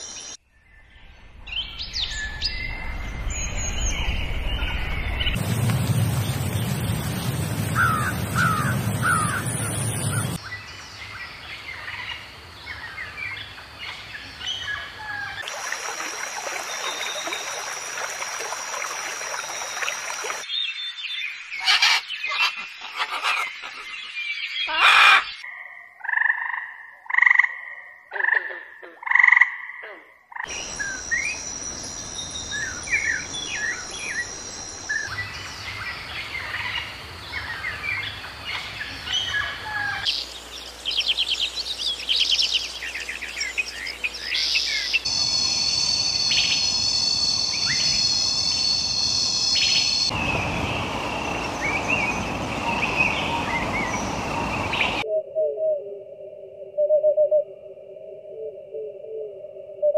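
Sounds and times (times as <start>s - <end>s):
loud bird calls: 7.5s - 10.6s, 21.6s - 25.4s
bird chirps: 40.1s - 55.3s.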